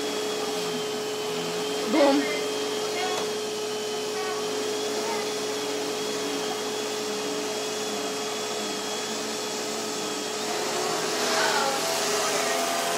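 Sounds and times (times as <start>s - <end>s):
vacuum cleaner running: 0.0s - 12.9s.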